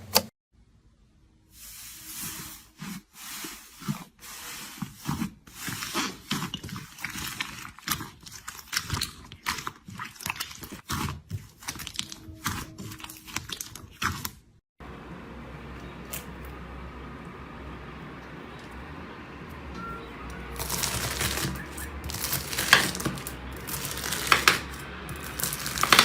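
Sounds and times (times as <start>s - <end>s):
slime squelching by hand: 1.6s - 14.6s, 20.2s - 26.0s.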